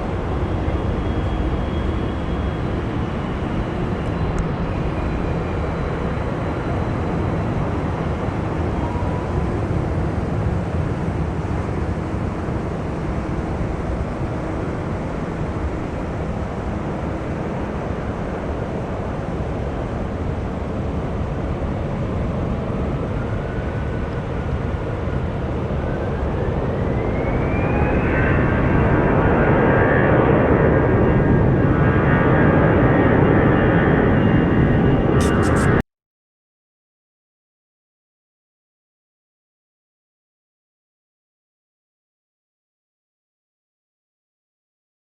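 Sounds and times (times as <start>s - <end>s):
jet engine rush: 0.0s - 35.8s.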